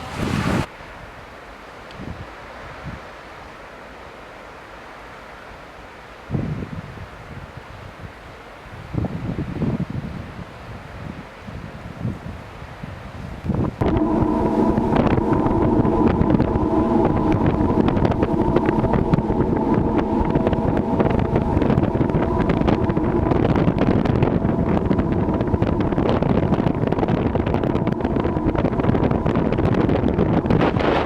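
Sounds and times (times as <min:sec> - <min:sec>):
wind buffeting microphone: 0:00.0 - 0:00.7, 0:01.9 - 0:03.1, 0:06.3 - 0:31.0
ship engine droning: 0:13.7 - 0:31.0.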